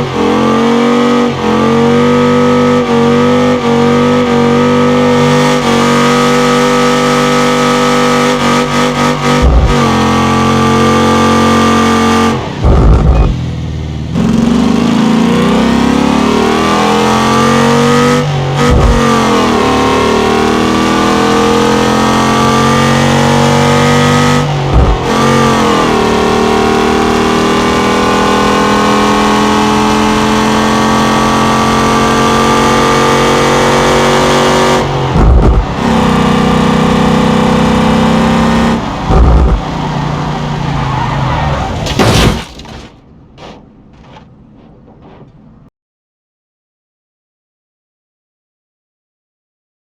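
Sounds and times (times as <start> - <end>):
engine revving hard: 14.2 - 39.8.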